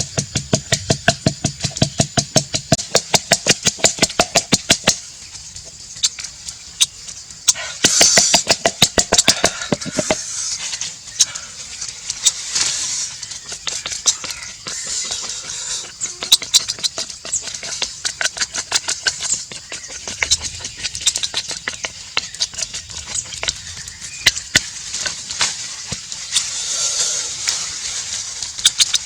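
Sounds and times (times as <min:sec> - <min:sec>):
scattered knocks: 0:00.0 - 0:05.0
short hiss bursts: 0:07.5 - 0:08.7, 0:09.9 - 0:10.9, 0:12.0 - 0:13.3, 0:25.5 - 0:28.7.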